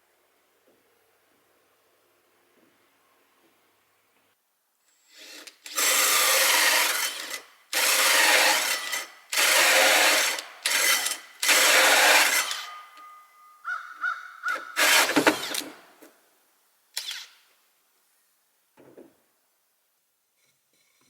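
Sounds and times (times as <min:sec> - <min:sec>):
hand tool rasping on wood: 0:05.2 - 0:13.0, 0:14.8 - 0:15.6.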